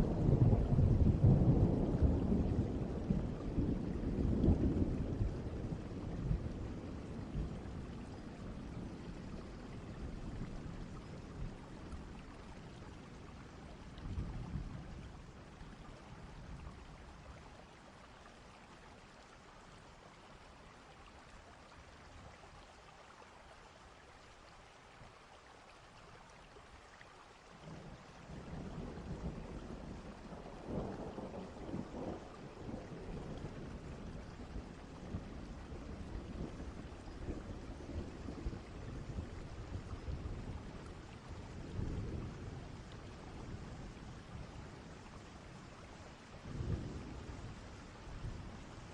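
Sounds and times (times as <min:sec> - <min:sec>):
low rolls of thunder: 0:00.0 - 0:17.5, 0:27.6 - 0:48.9
steady rain: 0:00.0 - 0:48.9.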